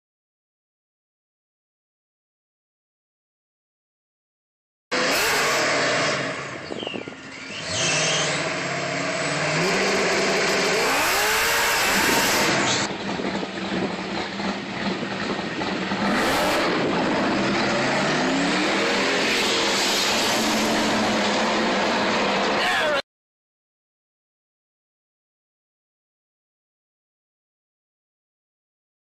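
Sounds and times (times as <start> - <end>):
car engine revving: 4.9 - 22.9.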